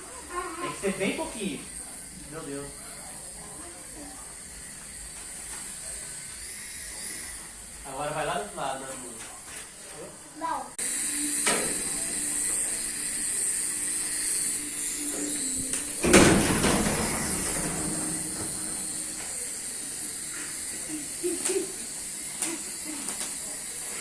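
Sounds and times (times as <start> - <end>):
toy drone whining: 10.8 - 16.0
loud thump: 16.0 - 19.0.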